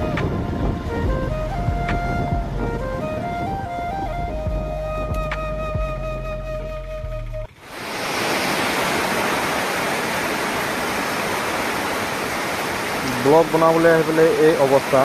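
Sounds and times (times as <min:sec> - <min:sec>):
flute music: 0:00.0 - 0:07.6
heavy rain falling: 0:07.5 - 0:15.0.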